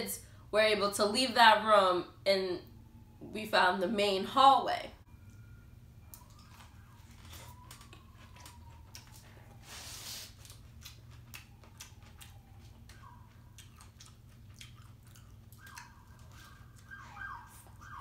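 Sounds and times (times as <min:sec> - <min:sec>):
burger being bitten and chewed: 0:06.0 - 0:09.3, 0:10.1 - 0:18.0.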